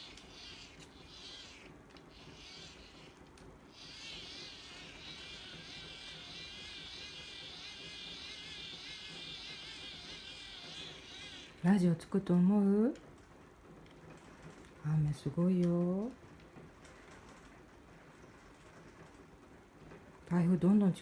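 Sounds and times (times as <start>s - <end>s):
hand-crank dynamo whirring: 0.0s - 11.8s.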